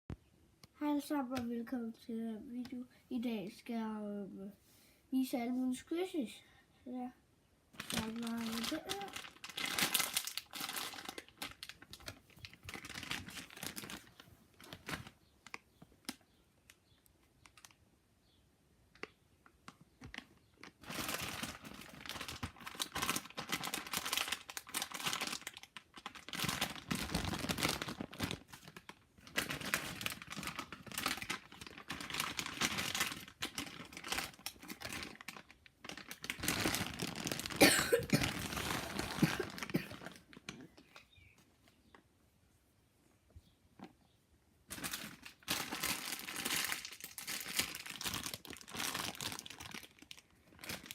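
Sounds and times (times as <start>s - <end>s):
plastic packaging crinkling: 7.8s - 17.8s, 19.6s - 41.3s, 44.7s - 50.9s.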